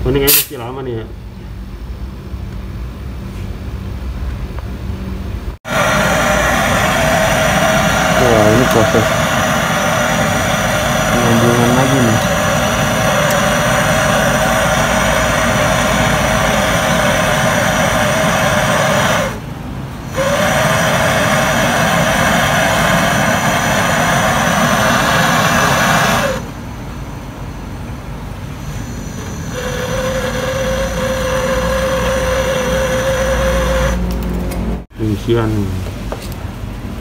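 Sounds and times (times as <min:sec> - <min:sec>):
electric pump humming: 0:05.6 - 0:26.6, 0:28.6 - 0:34.8.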